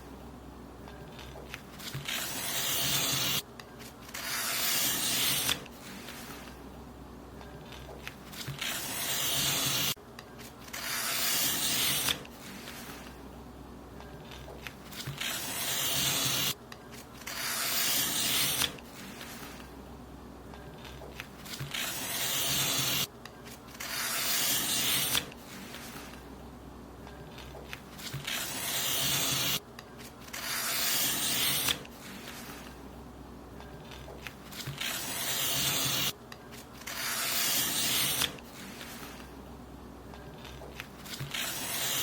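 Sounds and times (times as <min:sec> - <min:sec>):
paper being cut: 0:01.2 - 0:03.4, 0:04.0 - 0:06.5, 0:07.7 - 0:13.1, 0:14.3 - 0:19.6, 0:20.8 - 0:23.1, 0:23.7 - 0:26.2, 0:27.3 - 0:32.8, 0:33.9 - 0:36.2, 0:36.8 - 0:39.3, 0:40.4 - 0:42.0.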